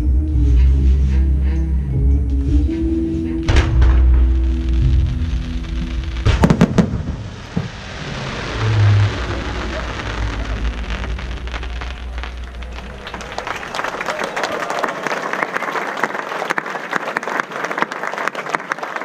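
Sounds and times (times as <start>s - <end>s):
music: 0.0s - 7.2s
deep firework thump: 3.5s - 13.6s
firework bangs: 3.5s - 14.5s
dense firework crackling: 3.5s - 14.9s
crowd applause: 6.4s - 19.0s.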